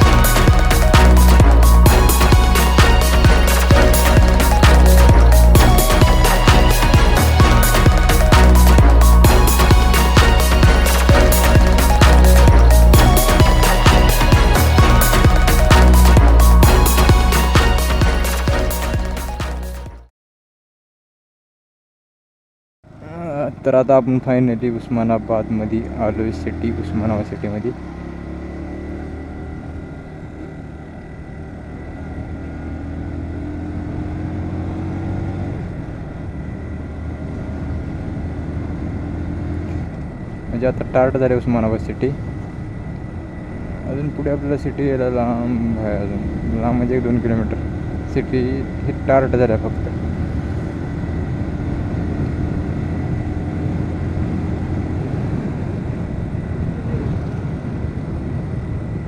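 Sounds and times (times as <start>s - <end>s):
motorcycle engine cruising: 0.0s - 20.0s, 22.9s - 59.0s
road noise: 0.0s - 20.0s, 22.9s - 59.0s
wind rumble on microphone: 49.8s - 59.0s.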